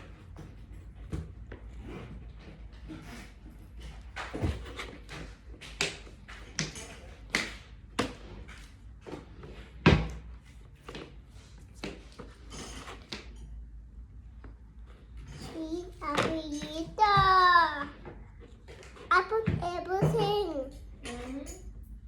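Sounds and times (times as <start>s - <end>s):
objects knocking and clattering: 0.0s - 11.2s, 15.2s - 22.0s.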